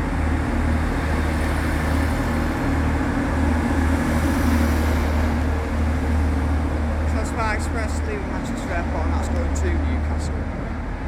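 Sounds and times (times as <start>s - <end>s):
train humming at platform: 0.0s - 11.0s.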